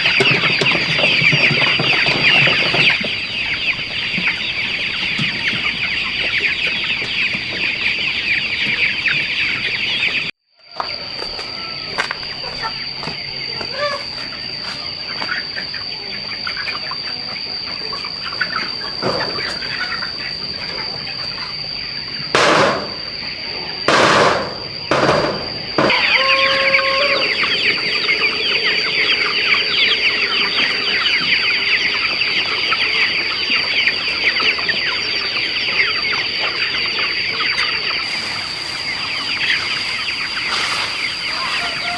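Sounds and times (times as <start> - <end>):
chickens clucking: 0.0 - 41.9
loud bursts of noise: 22.3 - 23.2, 23.9 - 28.0.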